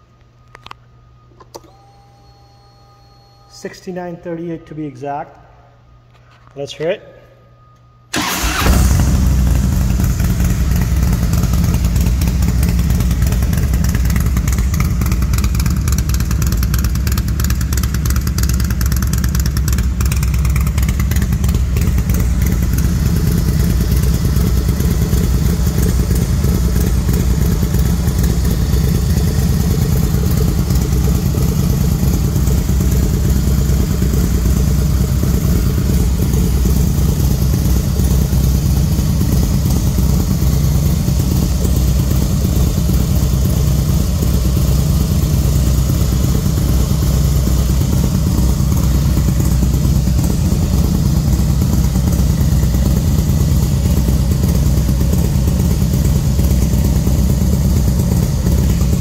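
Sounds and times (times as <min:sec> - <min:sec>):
motorcycle engine starting and running: 0:08.1 - 0:59.0.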